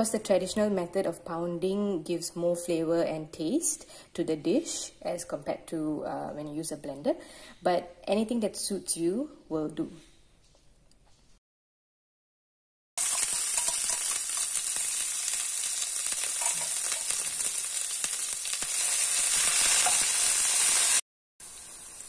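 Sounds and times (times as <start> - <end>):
spice paste sizzling in hot oil: 13.0 - 22.0.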